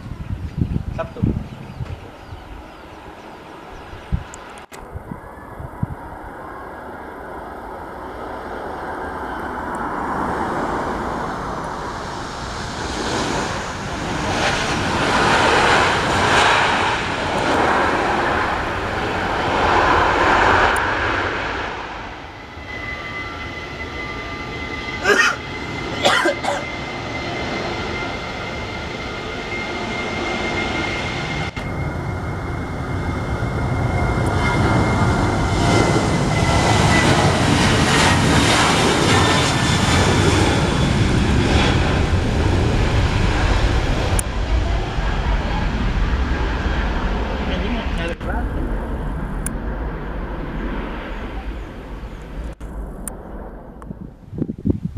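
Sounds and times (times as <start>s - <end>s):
airliner engines rushing: 0.0s - 54.9s
high whine: 0.0s - 54.9s
deep rumble: 31.2s - 54.9s.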